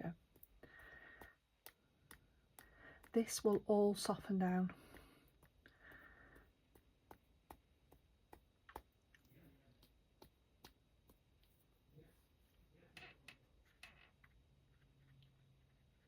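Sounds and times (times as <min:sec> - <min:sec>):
faint small clicks and taps: 0:00.3 - 0:04.2.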